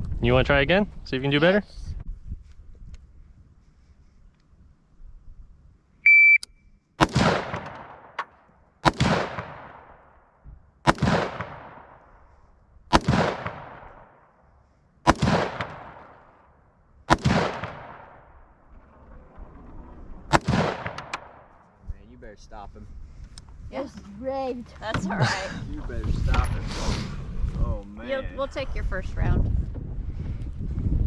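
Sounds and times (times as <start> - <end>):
shot timer beep: 6.0 - 6.6
gunshots echoing: 7.0 - 10.1, 10.8 - 12.1, 12.9 - 14.4, 15.0 - 18.8, 19.8 - 21.6.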